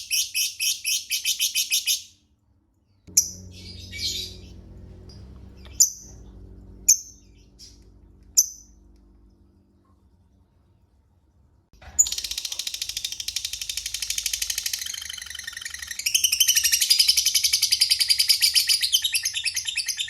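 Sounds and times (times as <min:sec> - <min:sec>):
faint low hum: 0:02.3 - 0:18.1
sharp bird chirps: 0:03.1 - 0:04.6, 0:12.0 - 0:20.0
lovebird chattering: 0:12.0 - 0:20.0.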